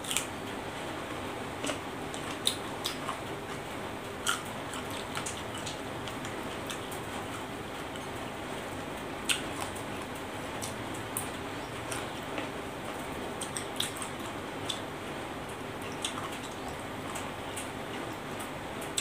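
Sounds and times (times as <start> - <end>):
crunchy chewing: 0.0 - 0.3, 1.6 - 8.2, 9.2 - 14.9, 15.8 - 18.2.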